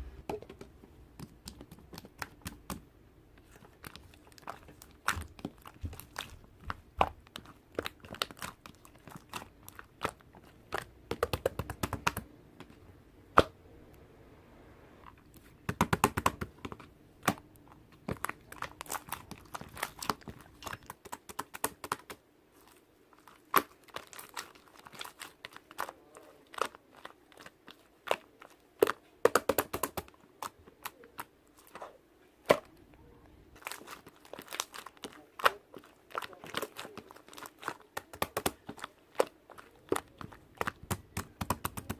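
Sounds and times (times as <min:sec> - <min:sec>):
slime clicking and popping: 0:03.8 - 0:12.2, 0:33.6 - 0:41.9.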